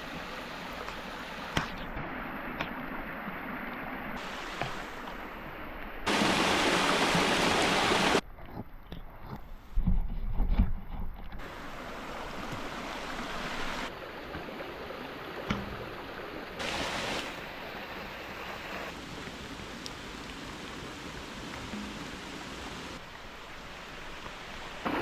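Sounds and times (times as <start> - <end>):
running water: 0.0 - 8.2, 11.4 - 25.0
heavy rain: 6.0 - 8.2, 16.6 - 17.6, 18.5 - 24.2.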